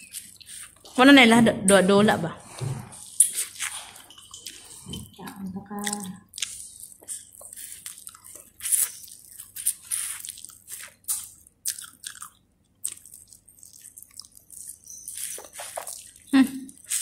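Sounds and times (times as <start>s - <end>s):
crunchy food being chewed: 0.0s - 1.0s, 3.0s - 17.0s.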